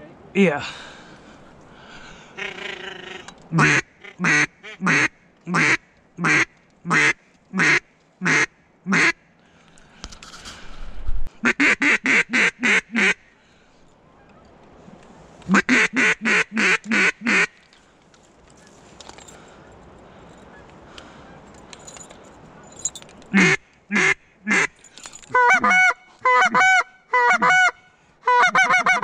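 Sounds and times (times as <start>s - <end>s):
duck call quacks: 2.4s - 9.2s, 11.4s - 13.2s, 15.5s - 17.6s, 23.4s - 29.0s.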